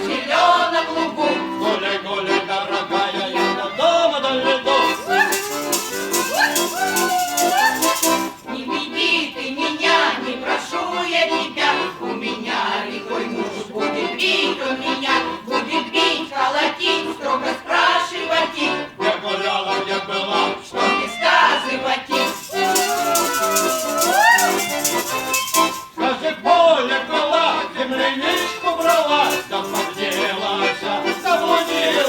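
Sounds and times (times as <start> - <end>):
accordion folk song: 0.0 - 32.0
voices whooping: 4.8 - 8.4, 22.1 - 25.9
rattle-like percussion: 4.8 - 8.6, 22.1 - 26.1, 27.9 - 32.0.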